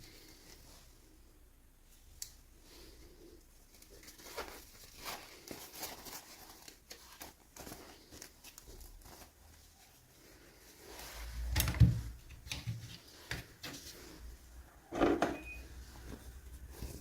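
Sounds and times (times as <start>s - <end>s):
packaging rustling: 3.7s - 11.2s.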